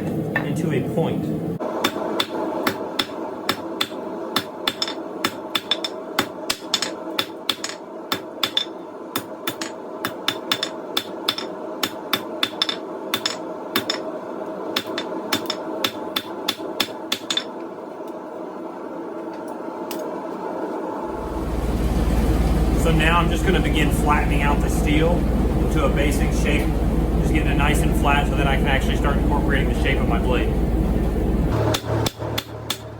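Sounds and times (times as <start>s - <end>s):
hammer striking steel on anvil: 1.8s - 14.0s, 14.8s - 17.5s, 31.6s - 32.9s
steady hum: 17.3s - 32.9s.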